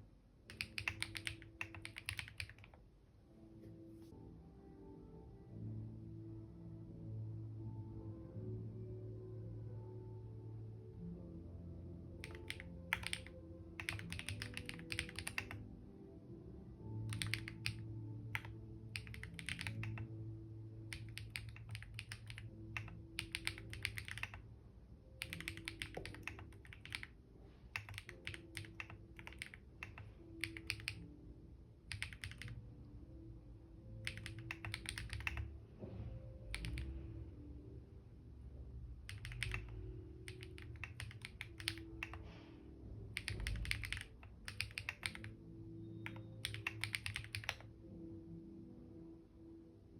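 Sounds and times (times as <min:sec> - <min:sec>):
faint background music: 0:00.0 - 0:49.9
computer keyboard typing: 0:00.5 - 0:02.8, 0:12.2 - 0:15.7, 0:17.0 - 0:20.2, 0:20.8 - 0:24.4, 0:25.2 - 0:31.2, 0:31.8 - 0:32.6, 0:33.9 - 0:35.5, 0:36.4 - 0:37.0, 0:39.0 - 0:42.3, 0:43.1 - 0:45.4, 0:46.0 - 0:47.7.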